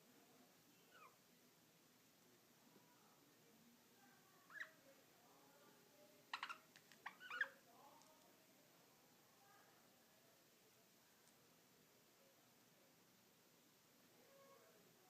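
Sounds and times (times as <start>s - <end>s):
budgerigars chirping and clicking: 6.3s - 7.5s.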